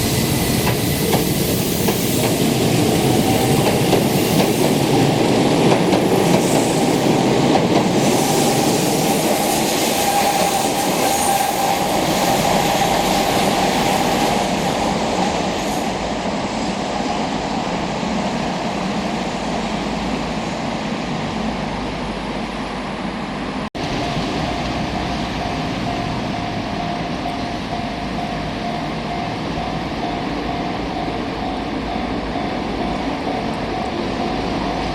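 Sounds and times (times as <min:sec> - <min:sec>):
train rumbling on rails: 0:00.0 - 0:34.9.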